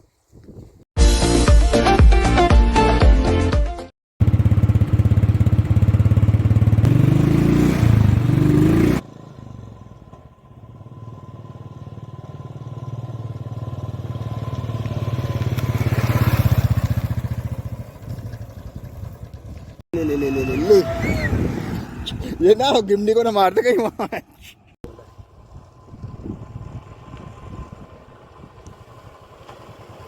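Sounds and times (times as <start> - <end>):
vehicle engine pulsing: 24.9 - 30.0.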